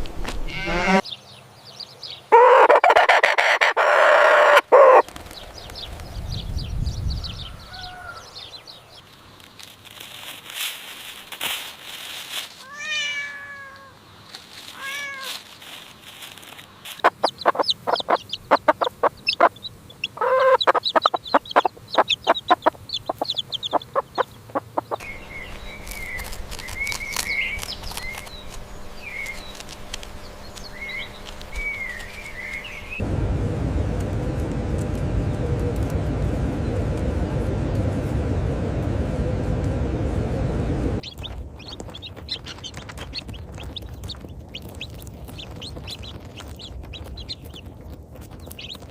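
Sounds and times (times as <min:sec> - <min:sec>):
short falling animal calls: 0:00.4 - 0:01.0
rapid clicking calls: 0:16.8 - 0:33.0, 0:41.0 - 0:48.9
high chirps: 0:17.0 - 0:33.0
loud low steady sound: 0:25.0 - 0:41.0.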